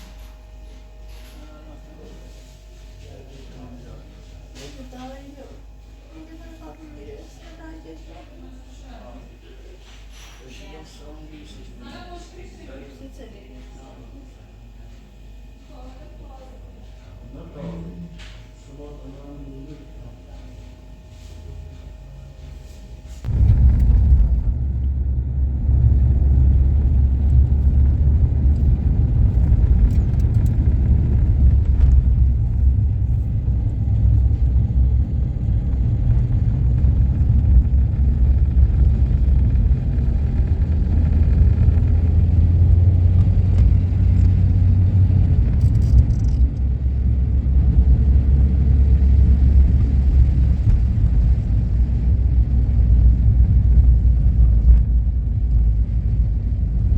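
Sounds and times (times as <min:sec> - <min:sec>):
wind buffeting microphone: 0:23.3 - 0:56.9.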